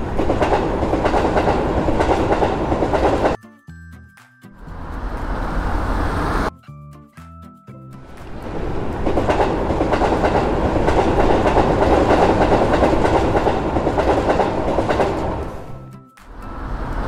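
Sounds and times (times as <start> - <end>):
train wheels clattering on rails: 0.0 - 3.4, 8.2 - 15.8.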